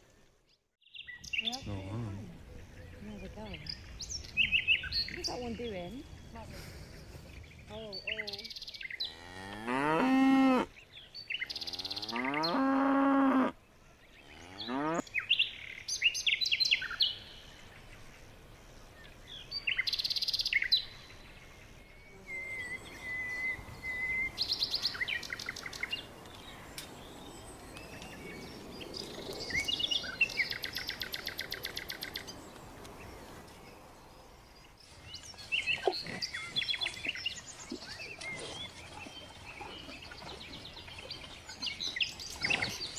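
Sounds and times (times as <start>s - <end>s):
bird chirps trills and whistles: 21.9s - 32.4s.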